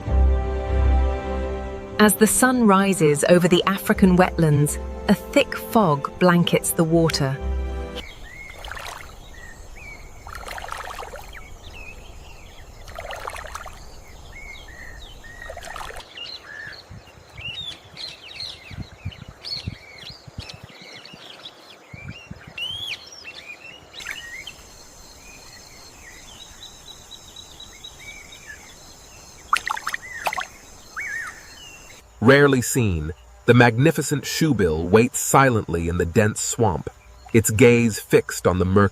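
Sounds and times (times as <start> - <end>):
small birds chirping: 8.0 - 38.9.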